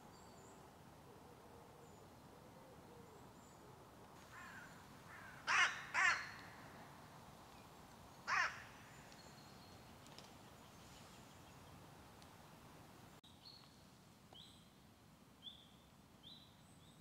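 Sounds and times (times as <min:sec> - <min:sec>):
bird calling: 0:01.1 - 0:06.6, 0:08.3 - 0:11.6.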